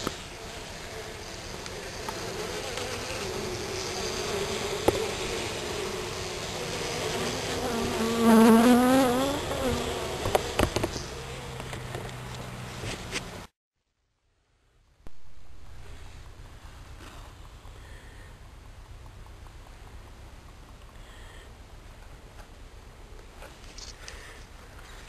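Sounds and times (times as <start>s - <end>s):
bee buzzing close by: 0.0s - 11.6s
bees buzzing at a hive: 0.0s - 12.0s.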